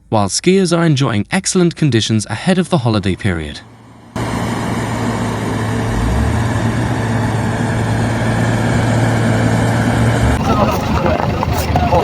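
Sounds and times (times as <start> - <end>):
even rushing noise: 2.3 - 12.0
vehicle engine running: 2.3 - 12.0.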